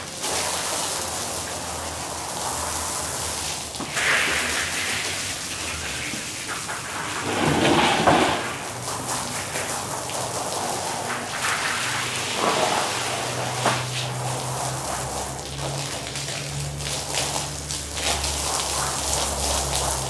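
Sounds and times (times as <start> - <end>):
water spraying and splashing on rug: 0.0 - 20.0.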